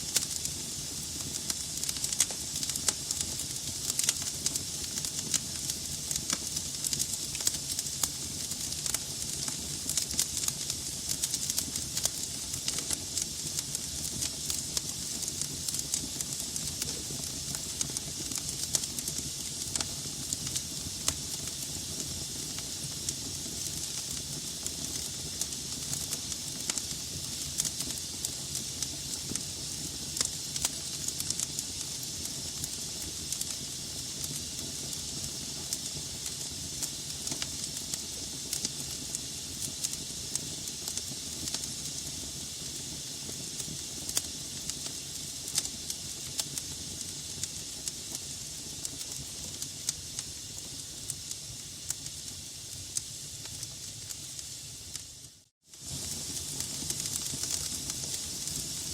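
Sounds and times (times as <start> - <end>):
fire hissing: 0.0 - 58.9
wood crackling and popping: 0.1 - 27.0, 55.8 - 58.9.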